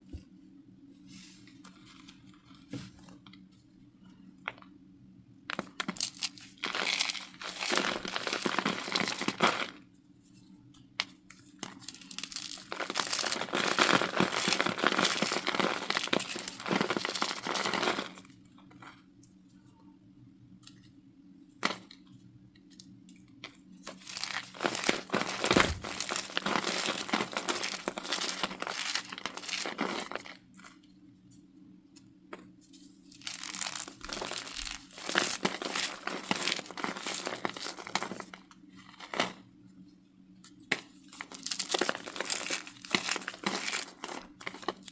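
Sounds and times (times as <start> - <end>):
cornstarch crunching and crackling: 5.5 - 9.9, 11.1 - 19.0, 22.8 - 30.8, 32.4 - 39.5, 40.5 - 44.9.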